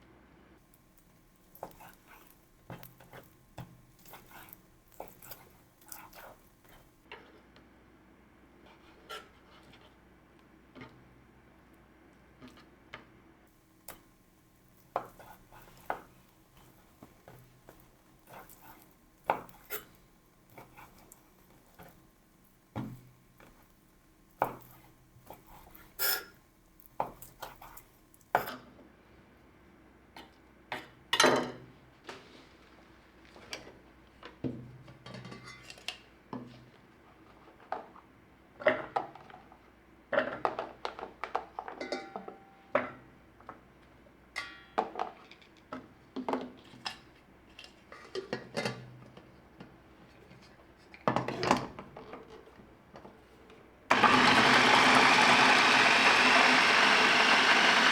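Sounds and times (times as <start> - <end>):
kitchen utensils and dishes clinking: 25.4 - 26.4, 41.7 - 42.7
kitchen utensils tapping: 41.8 - 42.6.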